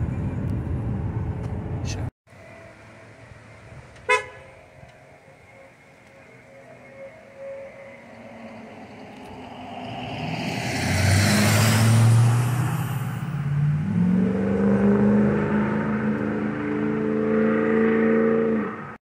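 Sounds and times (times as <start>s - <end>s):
car engine revving: 4.5s - 19.0s.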